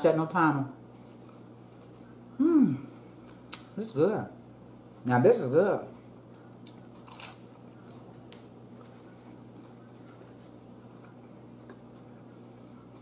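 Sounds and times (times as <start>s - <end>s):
low steady hum: 0.0s - 13.0s
faint chewing: 5.9s - 13.0s.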